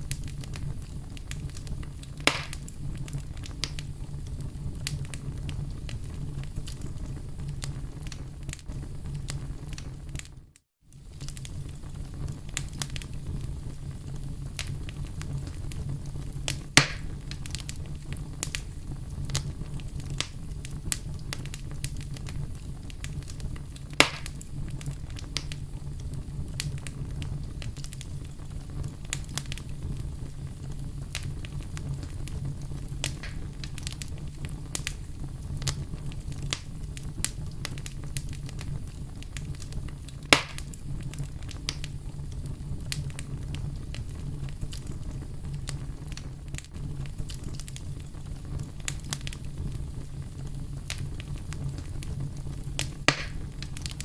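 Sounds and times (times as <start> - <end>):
loud sharp fire pops: 0.0 - 10.3, 11.0 - 54.0
wood fire crackling: 0.0 - 54.0
low steady rumble: 11.0 - 54.0.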